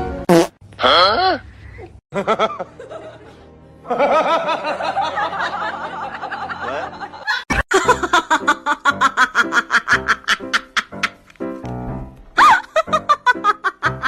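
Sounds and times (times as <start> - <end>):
people laughing: 2.1 - 11.2.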